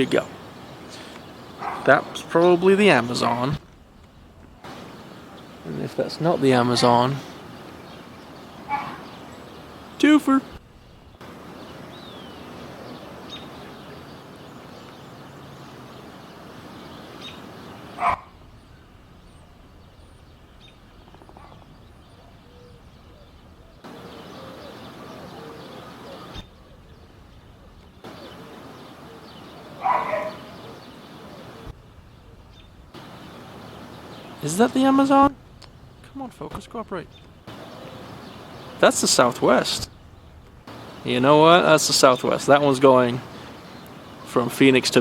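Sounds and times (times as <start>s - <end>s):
loud animal calls: 0.0s - 3.6s, 4.6s - 35.2s
faint bird chirps: 0.0s - 45.0s
outdoor background noise: 0.0s - 45.0s.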